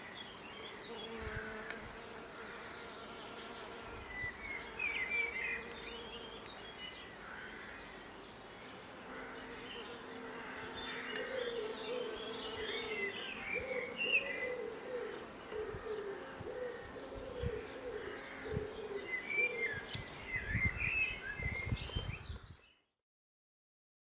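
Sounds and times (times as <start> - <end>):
songbirds chirping: 0.0 - 23.0
dove cooing: 11.1 - 19.9.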